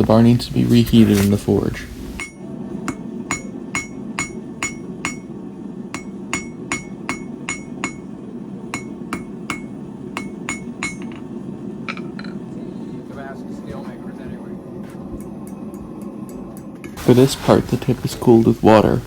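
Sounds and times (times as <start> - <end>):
steady low rumble: 0.0 - 19.0
hammer striking steel on anvil: 2.2 - 12.4.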